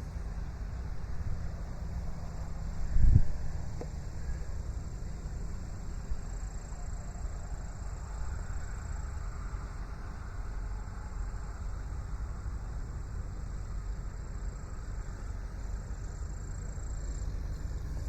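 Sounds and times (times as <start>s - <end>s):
tractor engine rumbling: 17.0s - 18.0s.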